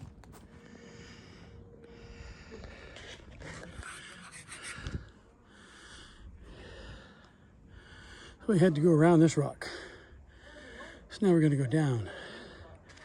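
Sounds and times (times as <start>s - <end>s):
person breathing hard: 0.5s - 8.4s, 12.0s - 13.0s.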